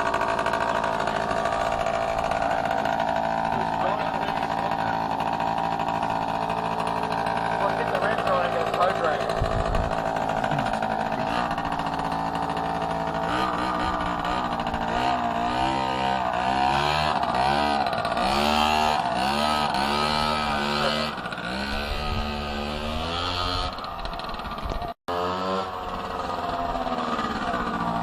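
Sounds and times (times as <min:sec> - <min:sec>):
minibike engine revving: 0:00.0 - 0:28.0.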